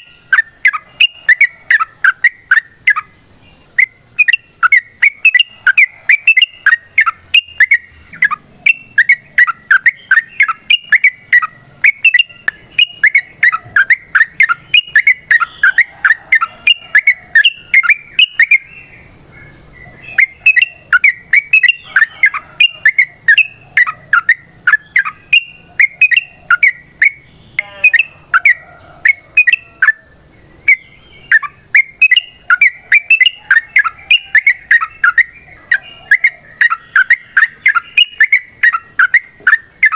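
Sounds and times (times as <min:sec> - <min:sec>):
bird singing fast chirping runs: 0:03.8 - 0:30.0.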